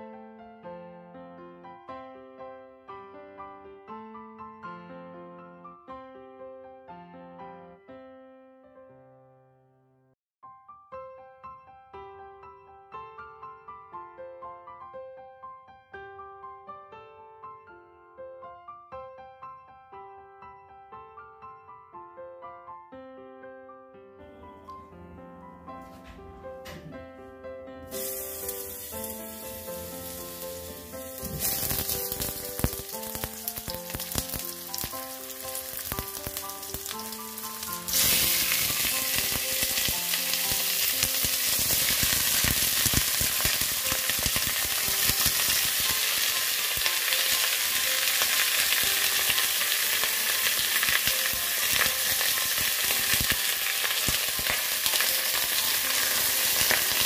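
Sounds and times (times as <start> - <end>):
piano music: 0.0 - 57.0
food sizzling in hot oil: 27.9 - 57.0.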